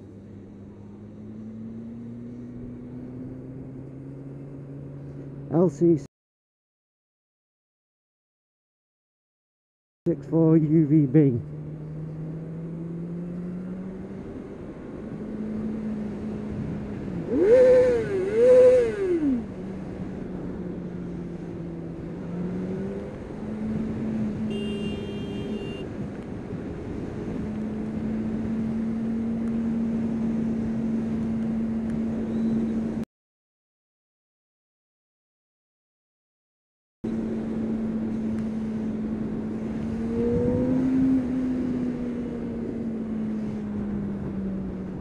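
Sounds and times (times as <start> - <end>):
motorcycle engine revving: 0.4 - 5.5, 11.4 - 20.5.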